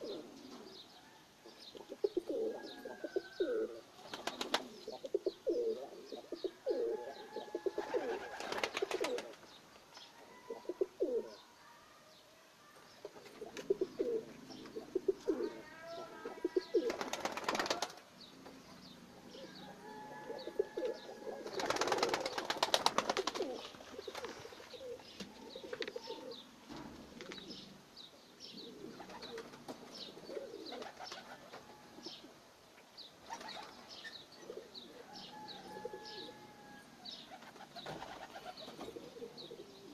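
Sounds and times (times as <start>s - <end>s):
pigeons cooing: 0.0s - 9.6s, 10.2s - 11.4s, 13.0s - 32.4s, 33.2s - 39.9s
wing flapping: 4.0s - 4.8s, 7.8s - 9.5s, 16.7s - 18.0s, 21.4s - 24.7s, 33.2s - 33.9s, 37.3s - 39.0s.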